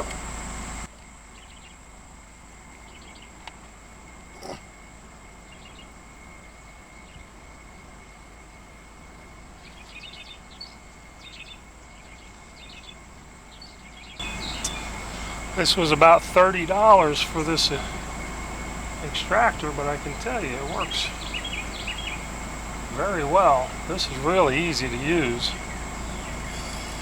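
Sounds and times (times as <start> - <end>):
short bird chirps: 13.6 - 16.4, 20.8 - 27.0
high-pitched insect drone: 14.2 - 27.0.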